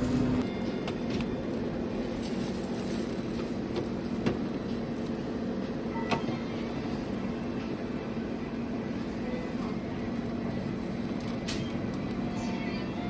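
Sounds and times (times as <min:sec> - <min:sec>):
vehicle running rumble: 0:00.0 - 0:00.4.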